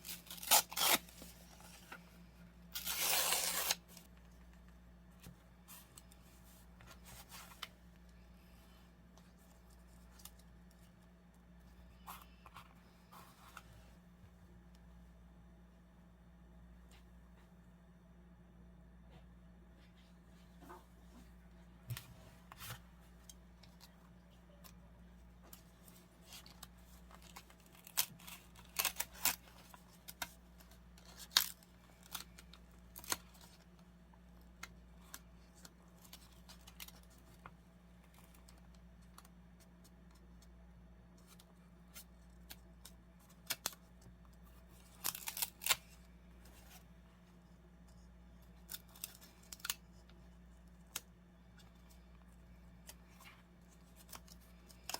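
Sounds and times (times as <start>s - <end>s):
scissors cutting paper: 0.0s - 1.3s, 2.8s - 3.8s
faint low hum: 0.0s - 54.9s.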